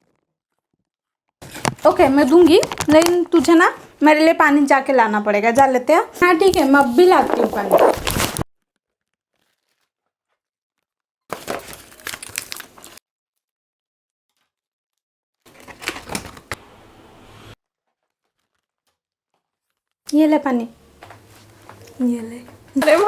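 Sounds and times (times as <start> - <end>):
foil snack packet crinkling: 6.4 - 13.0, 15.4 - 16.5, 17.6 - 20.1.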